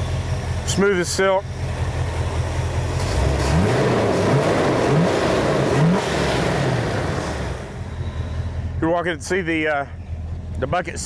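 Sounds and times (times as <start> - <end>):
engine revving: 2.7 - 8.4.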